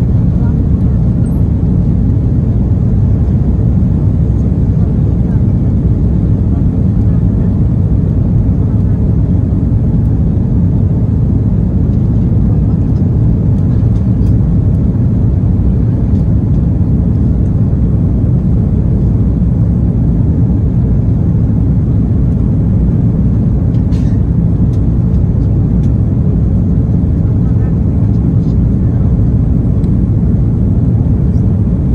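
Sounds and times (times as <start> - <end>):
jet engines rumbling in cabin: 0.0 - 31.9.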